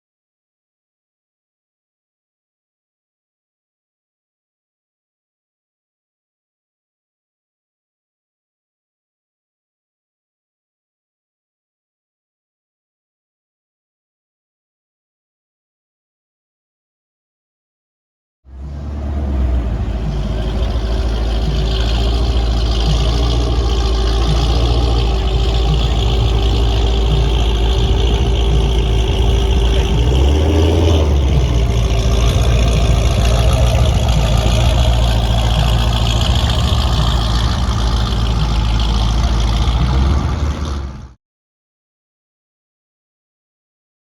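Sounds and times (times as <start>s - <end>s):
car engine running: 18.5s - 41.2s.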